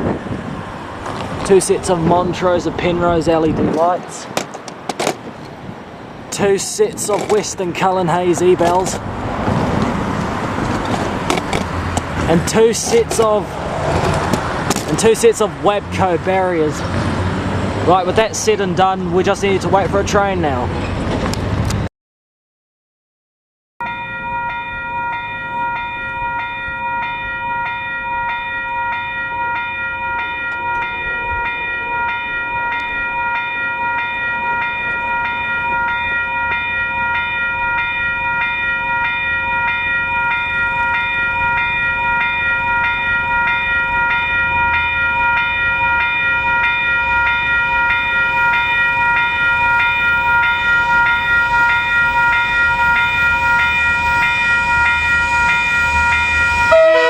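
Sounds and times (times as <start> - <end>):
level crossing bells ringing: 10.3 - 13.5, 14.8 - 16.8, 23.8 - 57.0.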